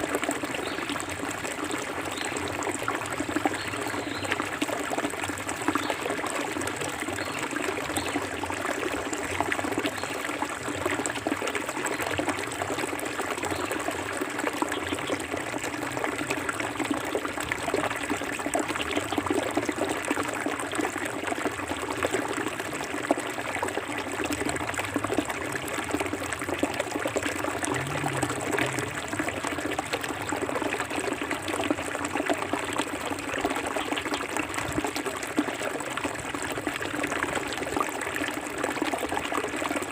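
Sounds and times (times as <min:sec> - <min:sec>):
river water rushing: 0:27.4 - 0:30.0.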